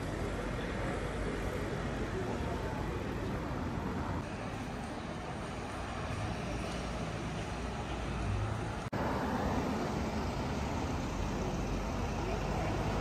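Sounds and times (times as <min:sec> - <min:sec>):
hum of passing cars: 0:00.0 - 0:13.0.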